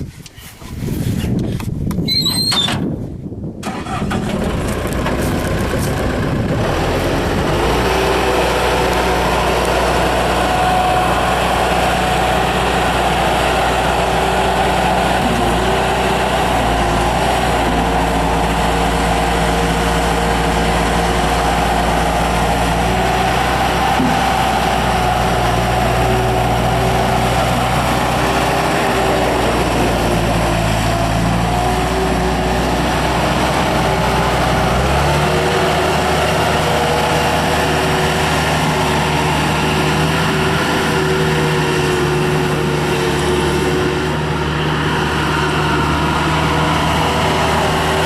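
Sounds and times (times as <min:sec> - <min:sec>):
diesel engine starting and idling: 0:03.6 - 0:48.0.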